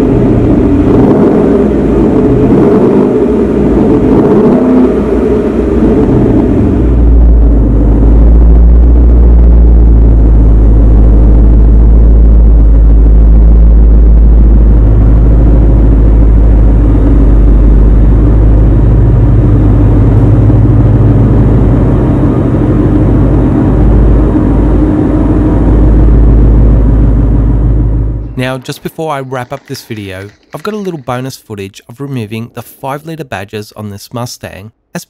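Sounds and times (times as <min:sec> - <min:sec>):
car engine with deep exhaust: 0:00.0 - 0:29.5.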